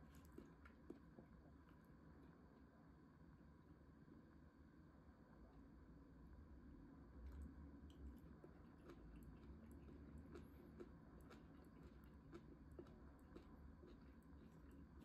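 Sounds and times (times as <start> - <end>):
faint chewing: 0.0 - 2.4, 7.2 - 15.0.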